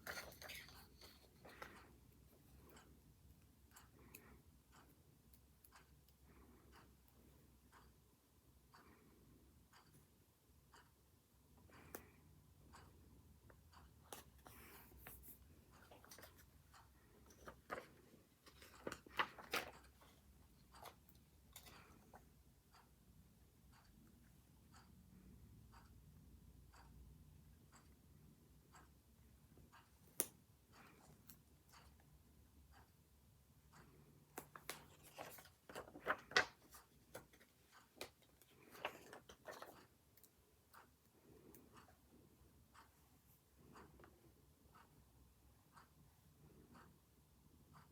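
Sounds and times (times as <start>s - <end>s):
paper rustling: 17.2s - 20.2s, 34.5s - 39.8s
small clicks and taps: 33.8s - 42.0s.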